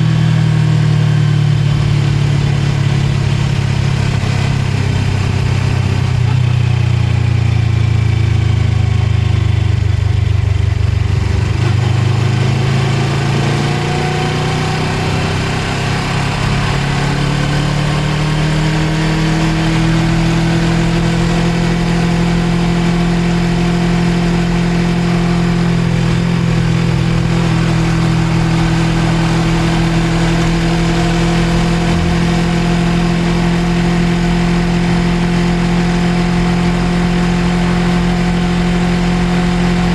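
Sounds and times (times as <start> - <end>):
riding wind noise: 0.0 - 6.8, 19.1 - 39.9
motorcycle engine accelerating: 0.0 - 39.9.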